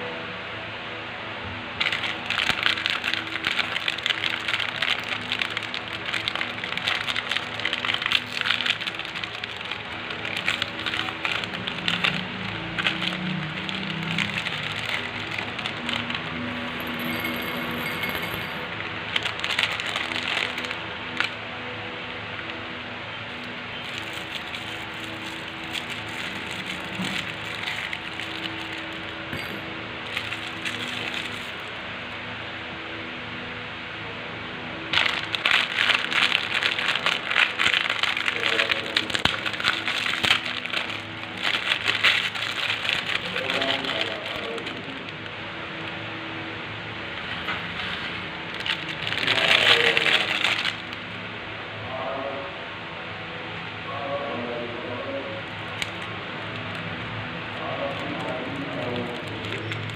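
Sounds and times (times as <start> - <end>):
candy wrapper crinkling: 1.8 - 17.8, 18.6 - 21.4, 23.3 - 31.8, 34.9 - 46.0, 47.2 - 51.1, 55.6 - 59.9.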